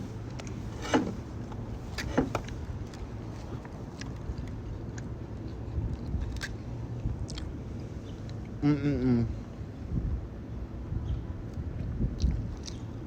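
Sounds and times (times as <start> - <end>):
steady low hum: 0.0 - 13.0
chewing smacks and clicks: 2.4 - 6.6, 7.2 - 7.6, 12.2 - 13.0.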